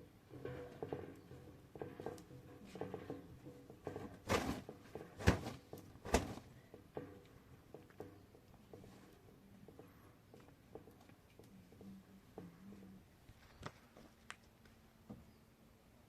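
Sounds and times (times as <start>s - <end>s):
objects clattering: 0.0s - 9.1s.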